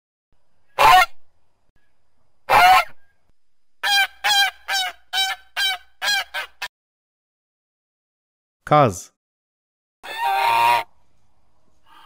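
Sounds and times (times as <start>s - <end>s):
geese honking: 2.5s - 2.9s, 10.1s - 10.9s.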